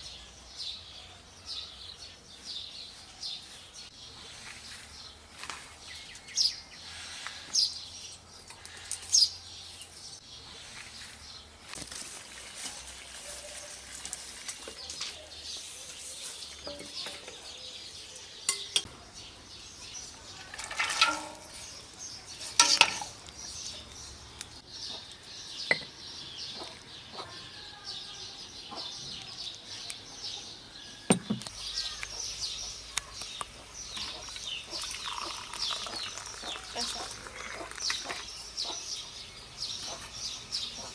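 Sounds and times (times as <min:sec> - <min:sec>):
small birds calling: 0:00.0 - 0:40.9
utensils clinking on pots: 0:16.5 - 0:17.6, 0:18.4 - 0:19.0, 0:20.2 - 0:23.3, 0:34.0 - 0:38.3
chickens clucking: 0:33.5 - 0:39.2.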